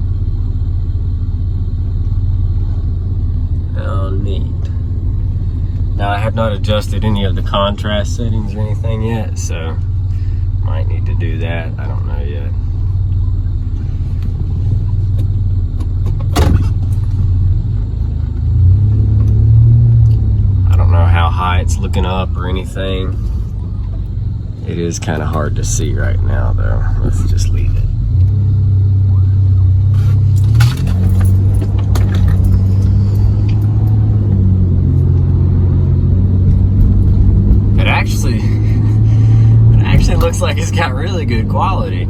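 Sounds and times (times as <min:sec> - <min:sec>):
car engine and road rumble: 0:00.0 - 0:42.0
light clicks and jangles: 0:30.0 - 0:34.0.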